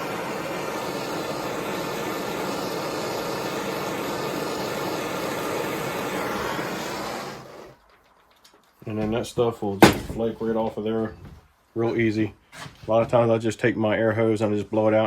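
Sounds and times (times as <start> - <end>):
gas torch flame rushing: 0.0 - 7.9.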